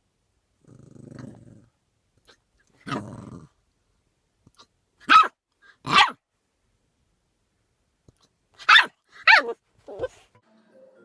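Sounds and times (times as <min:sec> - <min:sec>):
puppy barking: 0:05.0 - 0:06.2, 0:08.6 - 0:10.2.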